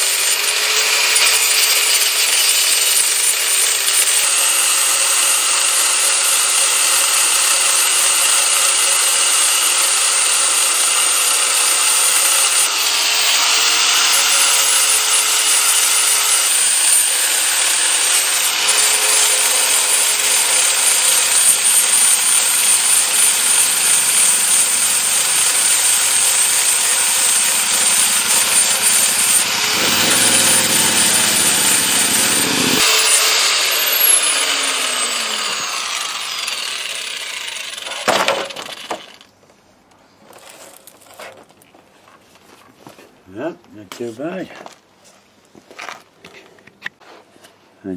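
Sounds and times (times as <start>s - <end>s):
angle grinder grinding rusty steel: 0.0s - 39.2s
grinder winding down whine: 12.1s - 39.2s.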